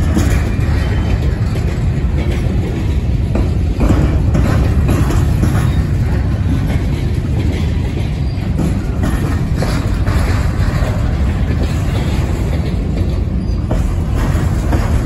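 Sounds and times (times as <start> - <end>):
freight train rumbling past: 0.0 - 15.0
train wheel clacks: 0.0 - 15.0.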